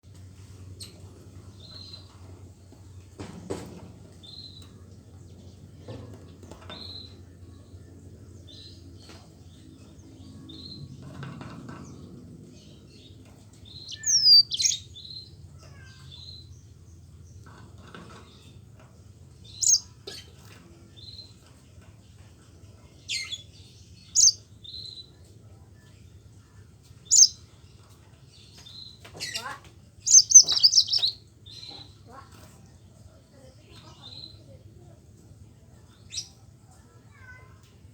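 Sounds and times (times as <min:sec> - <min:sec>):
canary chirping and singing: 0:10.3 - 0:16.5, 0:19.4 - 0:20.3, 0:23.1 - 0:25.0, 0:27.1 - 0:27.4, 0:28.9 - 0:32.0.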